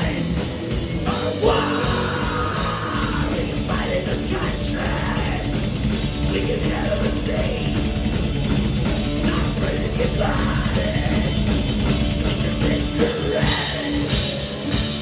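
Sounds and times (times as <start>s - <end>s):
person singing: 0.0s - 5.6s, 9.2s - 11.4s, 12.3s - 14.4s
distorted guitar: 0.0s - 15.0s
live rock band: 0.0s - 15.0s.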